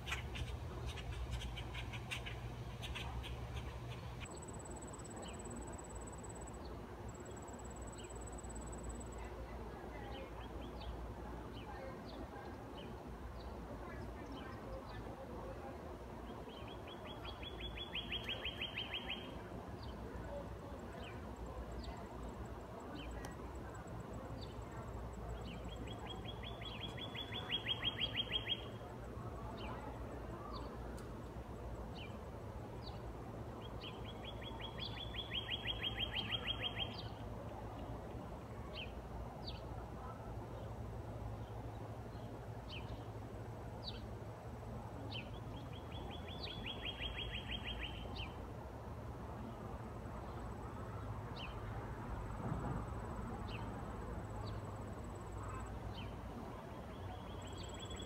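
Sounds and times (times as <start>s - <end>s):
low background hum: 0.0s - 15.8s.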